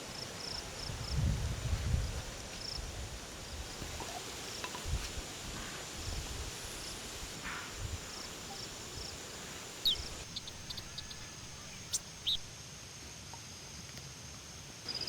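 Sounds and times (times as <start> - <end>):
quick falling bird calls: 9.7 - 12.5
bird chirps: 9.8 - 12.5.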